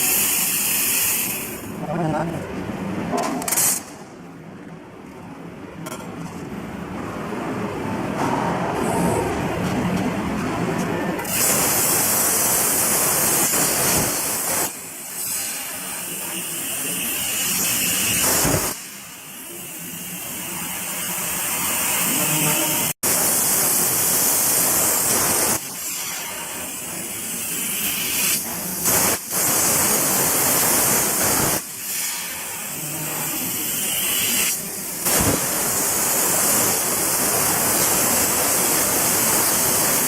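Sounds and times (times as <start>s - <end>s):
plasma torch cutting metal: 0.0s - 1.7s, 11.2s - 40.0s.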